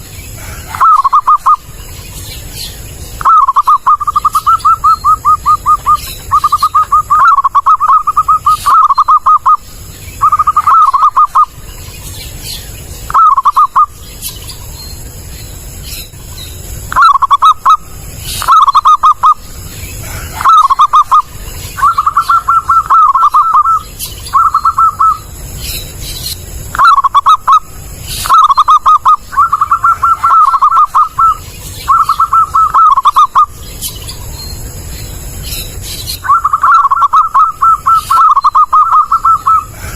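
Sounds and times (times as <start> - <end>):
dove cooing: 0.0 - 1.9, 3.2 - 11.6, 13.1 - 14.0, 16.9 - 25.3, 26.8 - 33.6, 36.2 - 39.9.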